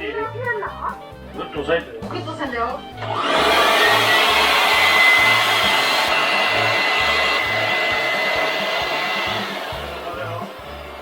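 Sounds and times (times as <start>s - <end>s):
electric air blower running: 3.0s - 11.0s.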